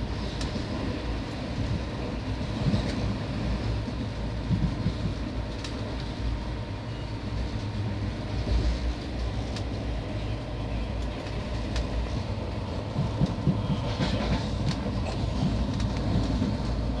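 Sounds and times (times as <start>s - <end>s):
train rumbling: 0.0s - 17.0s
wheels clacking on track: 8.4s - 17.0s.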